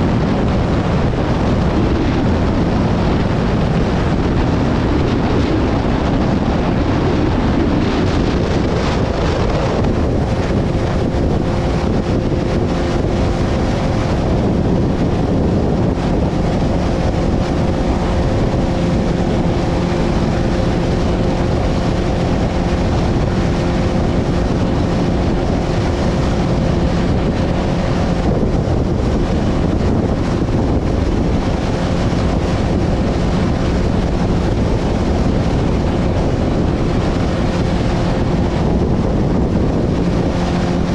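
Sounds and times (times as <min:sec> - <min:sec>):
boat motor humming: 0:00.0 - 0:40.9
boat through choppy water: 0:00.0 - 0:40.9
wind buffeting microphone: 0:00.0 - 0:40.9.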